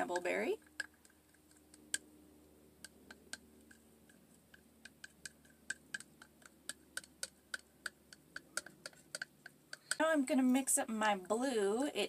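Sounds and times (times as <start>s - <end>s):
utensil tapping and scraping cup: 2.9s - 10.1s.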